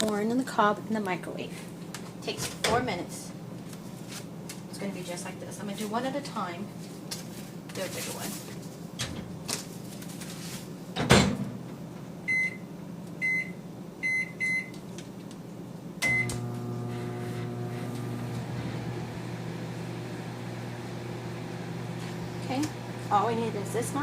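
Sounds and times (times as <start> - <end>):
microwave oven humming: 15.5 - 24.0.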